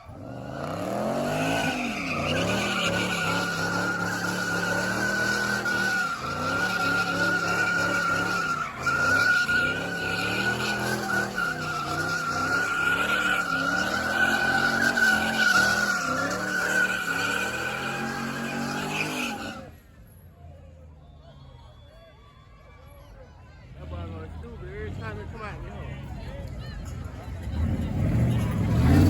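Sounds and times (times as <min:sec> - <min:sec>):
car engine revving: 0:00.0 - 0:19.8, 0:27.4 - 0:29.0
tires screeching: 0:00.0 - 0:20.2, 0:26.7 - 0:29.0.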